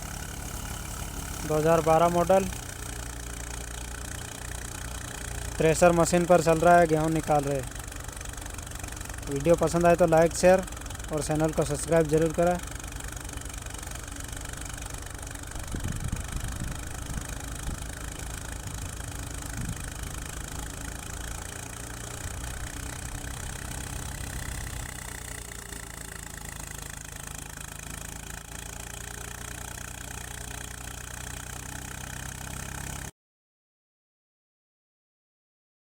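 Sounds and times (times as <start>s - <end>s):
thresher threshing wheat: 0.0s - 33.1s
tractor diesel engine running: 0.0s - 33.1s.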